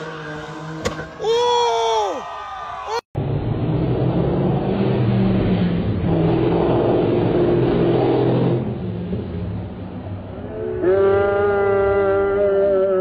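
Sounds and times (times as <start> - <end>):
car engine revving hard: 3.5 - 9.4.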